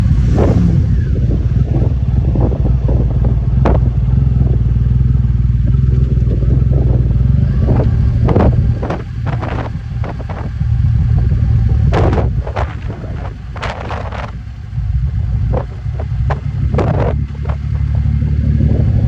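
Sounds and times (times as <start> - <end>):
motorcycle engine running: 0.0 - 19.0
sharp engine pops: 1.6 - 4.5, 7.8 - 10.6, 11.8 - 14.4, 15.5 - 18.0.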